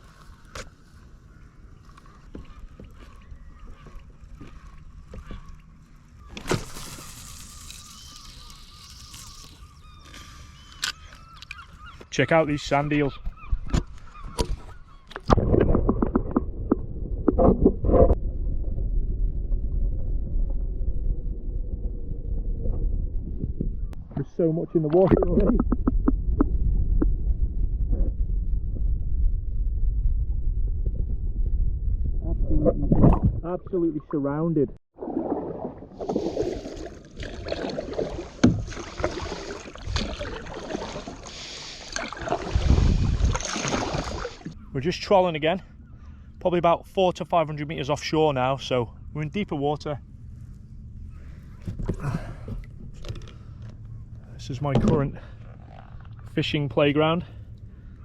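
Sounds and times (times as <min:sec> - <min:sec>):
water splashing around kayak: 0:00.0 - 0:10.4, 0:34.9 - 0:44.6
muffled underwater rumble and gurgle: 0:00.0 - 0:58.0
plunge with splashing and clicking: 0:35.0 - 0:44.6.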